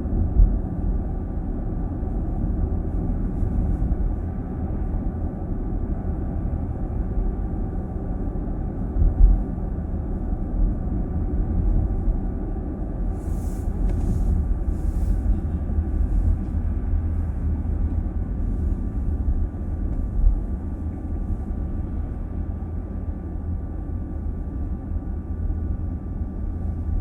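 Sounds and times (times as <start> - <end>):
car cabin road noise: 12.9 - 27.0.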